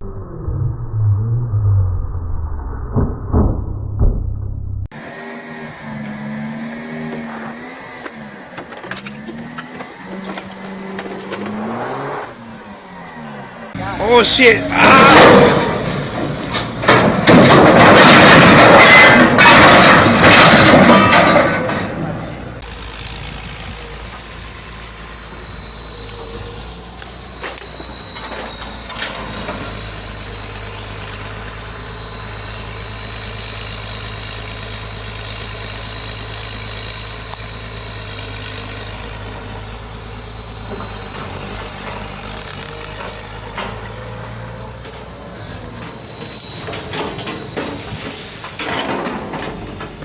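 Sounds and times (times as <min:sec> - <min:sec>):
road noise: 0:00.0 - 0:50.0
vehicle engine running: 0:03.3 - 0:50.0
thin high whine: 0:22.6 - 0:48.4.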